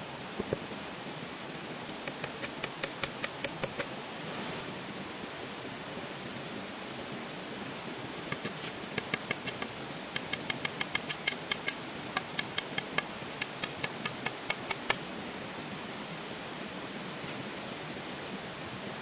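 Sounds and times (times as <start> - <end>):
steady hiss: 0.0 - 19.0
hammer tapping: 1.9 - 3.9, 8.3 - 15.0.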